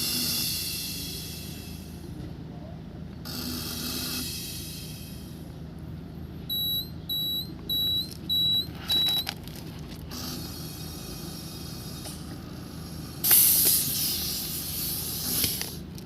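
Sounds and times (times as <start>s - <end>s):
air hissing: 0.0s - 2.0s, 3.3s - 5.5s, 10.2s - 16.0s
compressor humming: 0.0s - 16.0s
air inflator beeping: 6.5s - 9.3s, 13.2s - 15.7s.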